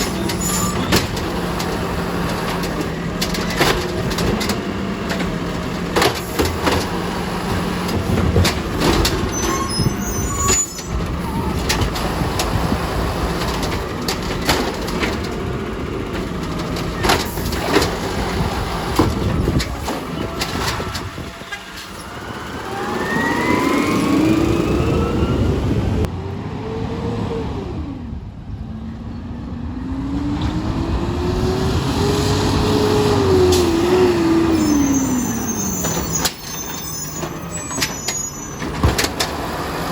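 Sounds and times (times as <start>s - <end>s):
garbage truck engine running: 0.0s - 26.1s
engine revving whine: 22.0s - 36.1s.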